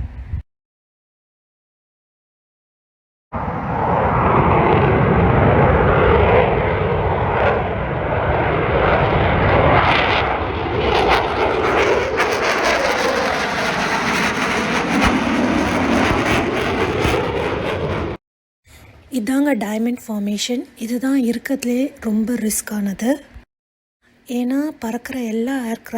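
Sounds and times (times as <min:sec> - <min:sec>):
jet aircraft flying low past: 0:03.4 - 0:18.2.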